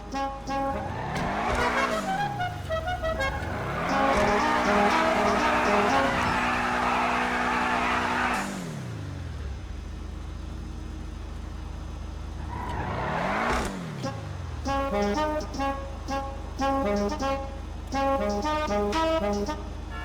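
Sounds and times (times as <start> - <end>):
brass-led music: 0.0 - 8.5, 14.6 - 20.0
car engine revving and idling: 0.0 - 20.0.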